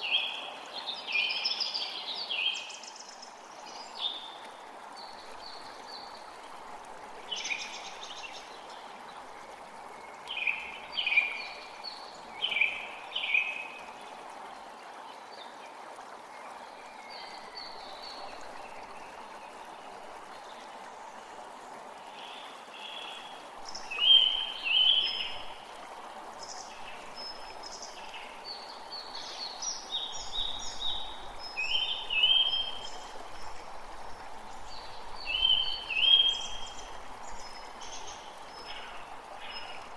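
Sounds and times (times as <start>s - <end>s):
creek running: 0.0s - 39.9s.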